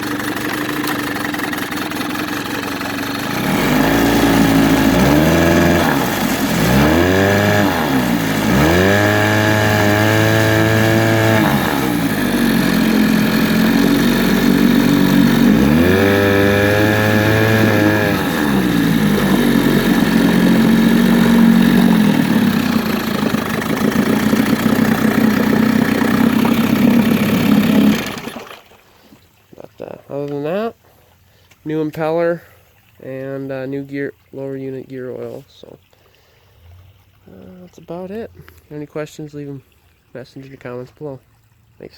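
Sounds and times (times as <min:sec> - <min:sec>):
outboard motor revving and idling: 0:00.0 - 0:28.8.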